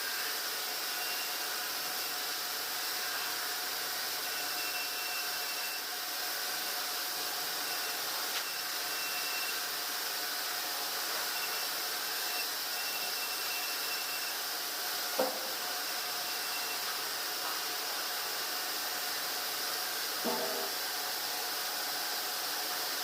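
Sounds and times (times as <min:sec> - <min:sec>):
sawmill machinery hiss: 0:00.0 - 0:23.0
knock: 0:15.2 - 0:15.5, 0:20.2 - 0:20.7.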